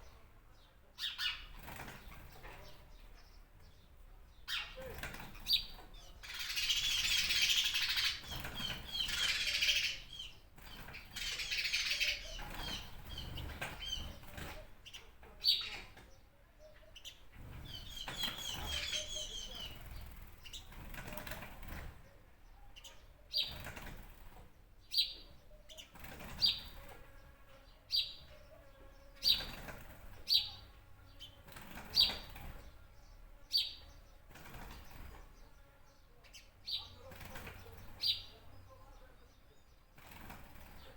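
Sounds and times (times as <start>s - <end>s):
high bird chirps: 17.0s - 20.7s.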